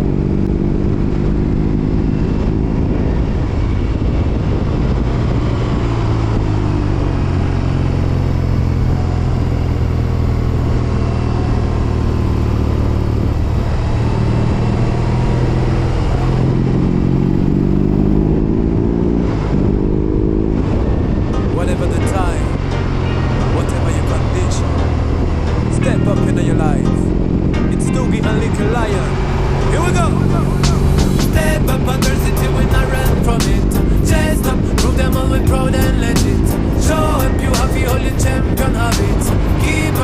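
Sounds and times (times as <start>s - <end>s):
motorcycle engine: 0.0s - 40.0s.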